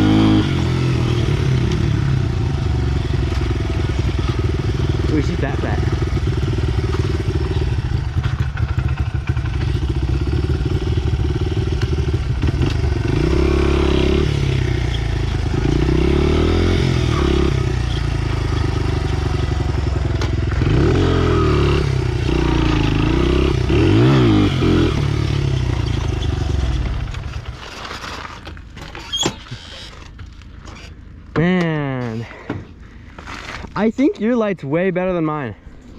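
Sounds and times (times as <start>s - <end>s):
pit bike engine revving: 0.0s - 27.3s.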